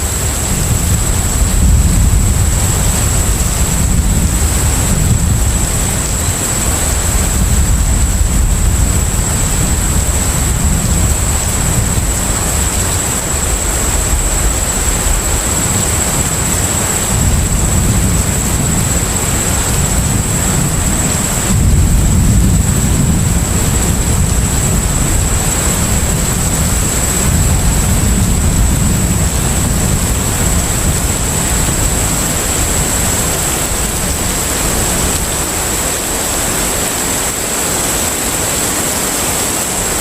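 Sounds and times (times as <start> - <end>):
deep ship engine rumble: 0.0 - 40.0
wind and sea noise: 0.0 - 40.0.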